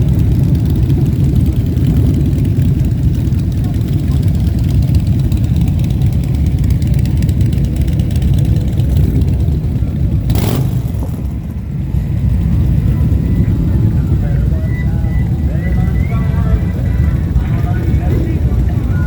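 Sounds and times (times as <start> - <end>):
motorcycle engines rumbling: 0.0 - 19.0.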